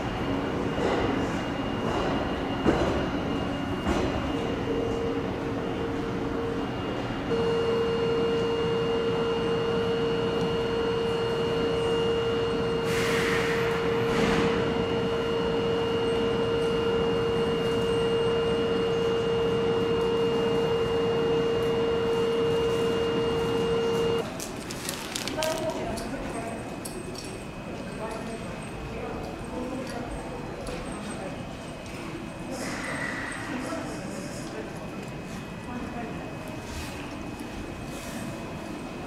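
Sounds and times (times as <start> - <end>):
train humming steadily: 0.0 - 39.0
short hiss of air: 12.9 - 14.4.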